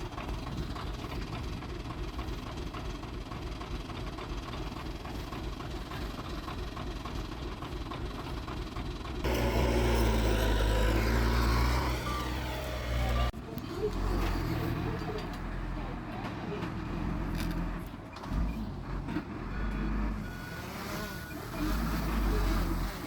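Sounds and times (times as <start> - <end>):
heavy diesel engine running: 0.0 - 23.0.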